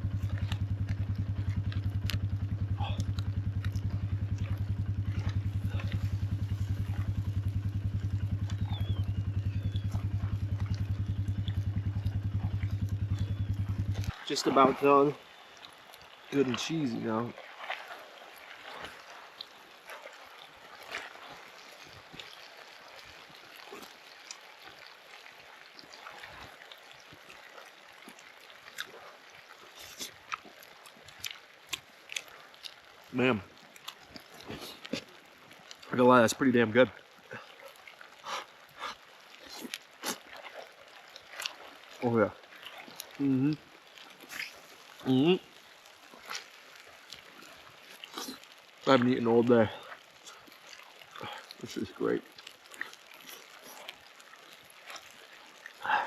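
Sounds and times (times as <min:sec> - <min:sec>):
four-wheeler engine idling: 0:00.0 - 0:15.1
faint clicks and crackles: 0:00.0 - 0:56.0.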